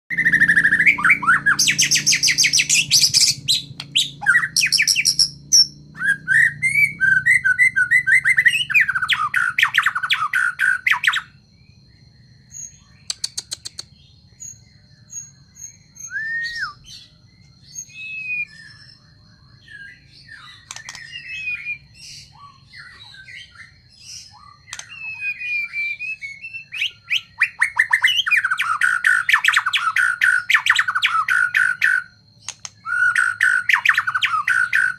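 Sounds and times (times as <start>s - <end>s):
bird chirps and calls: 0.1s - 11.4s, 12.4s - 34.9s
songbird singing: 0.1s - 34.9s.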